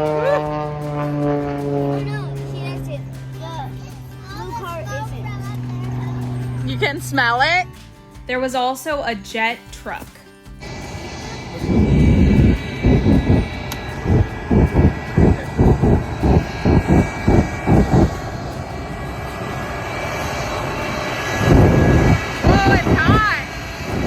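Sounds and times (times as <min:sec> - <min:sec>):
jet engine whine and rush: 0:10.6 - 0:24.0.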